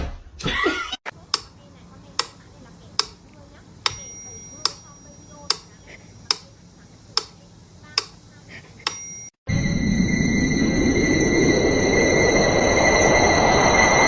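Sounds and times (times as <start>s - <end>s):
sharp ticks: 1.3s - 8.2s.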